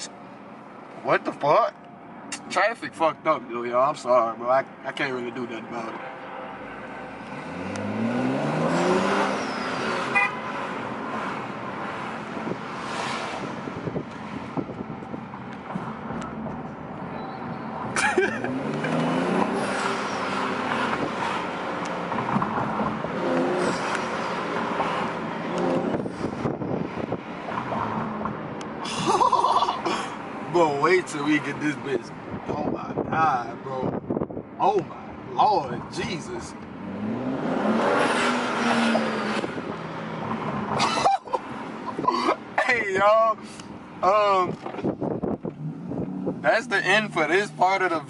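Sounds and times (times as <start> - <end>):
road noise: 0.0 - 48.0
car engine accelerating hard: 7.1 - 16.8, 17.8 - 29.7, 36.2 - 42.1, 44.2 - 48.0.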